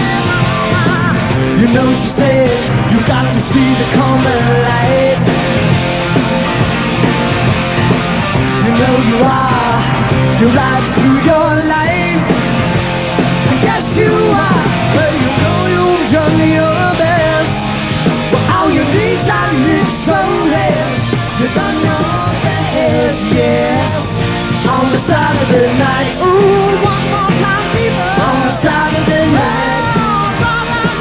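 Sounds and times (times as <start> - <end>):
bass: 0.0 - 31.0
drums: 0.0 - 31.0
rock band playing live: 0.0 - 31.0.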